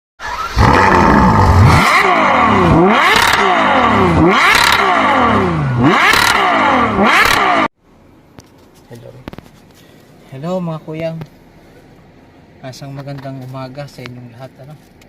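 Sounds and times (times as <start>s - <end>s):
engine revving: 0.2s - 7.7s.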